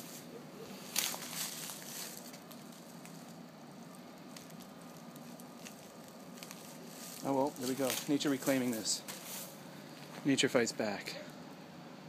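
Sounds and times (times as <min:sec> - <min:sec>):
faint rustling and crackling: 0:00.0 - 0:10.4.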